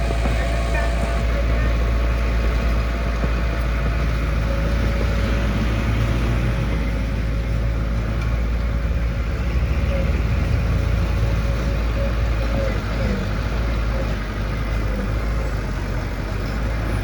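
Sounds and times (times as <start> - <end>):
thin steady whine: 0.0 - 5.7
heavy machine engine rumbling: 0.0 - 17.0.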